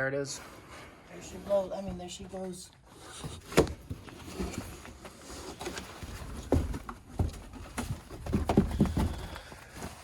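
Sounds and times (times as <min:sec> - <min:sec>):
soft knocks and thumps: 0:05.7 - 0:09.6.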